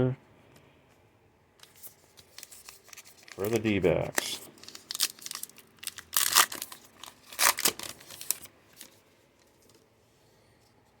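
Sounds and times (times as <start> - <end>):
cards being handled: 1.6 - 5.5.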